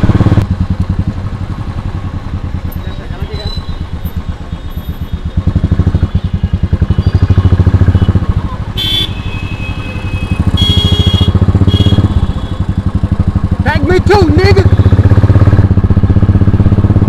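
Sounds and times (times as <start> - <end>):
motorcycle engine pulsing: 0.0 - 17.0
vehicle horns honking: 5.9 - 12.7.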